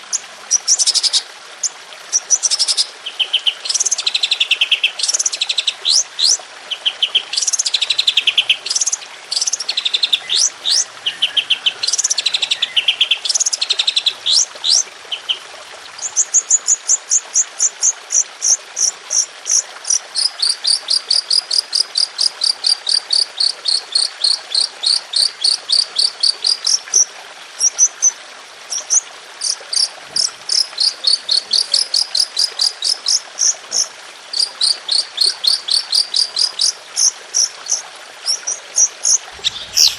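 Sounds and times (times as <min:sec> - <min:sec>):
songbird singing rapid high notes: 0:34.4 - 0:39.9.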